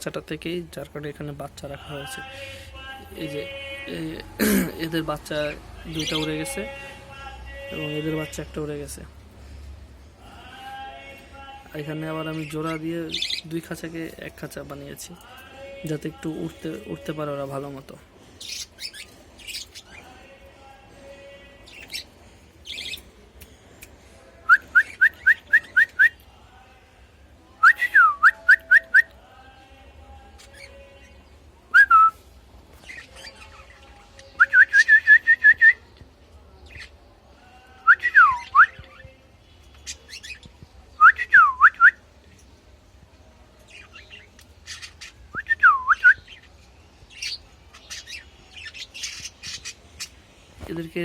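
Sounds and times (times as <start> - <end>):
budgerigars chirping and whistling: 18.4 - 20.2, 21.7 - 23.1, 43.7 - 45.2, 47.1 - 50.2.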